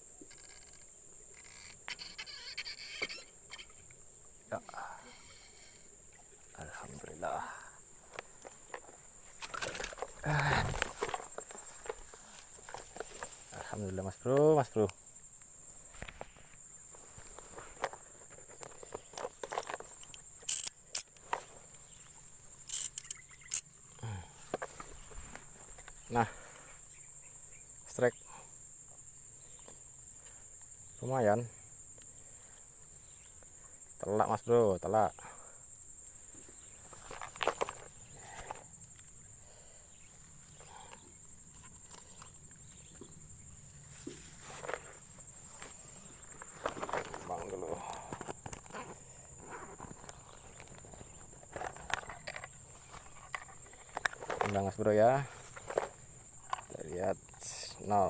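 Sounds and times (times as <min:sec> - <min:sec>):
insect chirring: 0:00.0 - 0:58.0
rustling: 0:07.8 - 0:14.2, 0:36.2 - 0:56.9.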